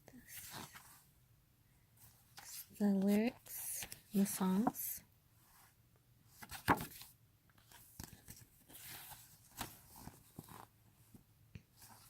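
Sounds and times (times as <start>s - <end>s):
paper rustling: 6.4s - 10.7s.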